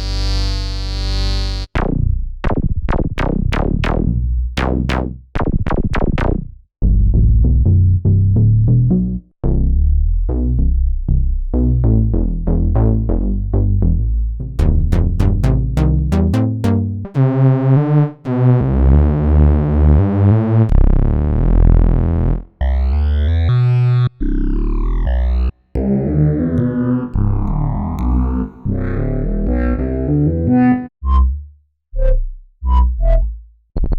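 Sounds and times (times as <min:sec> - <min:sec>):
synthesizer notes: 0:14.6 - 0:19.9.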